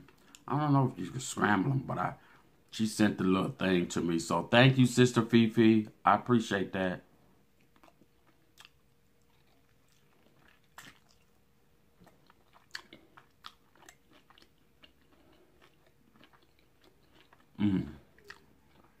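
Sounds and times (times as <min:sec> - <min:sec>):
faint chewing mouth clicks: 0:07.6 - 0:11.4, 0:12.0 - 0:19.0.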